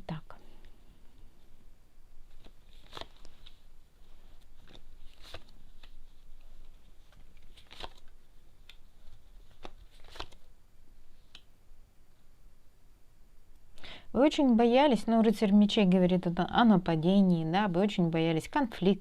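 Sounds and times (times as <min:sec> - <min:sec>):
cards tapping and rustling: 0:02.3 - 0:03.6, 0:04.2 - 0:10.4.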